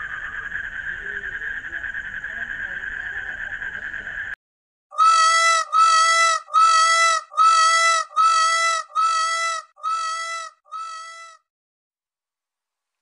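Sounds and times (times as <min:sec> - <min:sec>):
peacock calling: 0:04.9 - 0:11.4.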